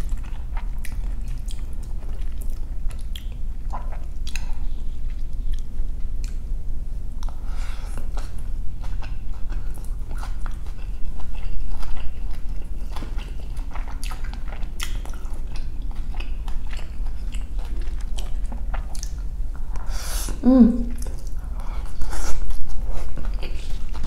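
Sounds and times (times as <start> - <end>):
wet chewing and mouth clicks: 0.0 - 6.5, 8.0 - 19.9
low steady hum: 0.0 - 24.0.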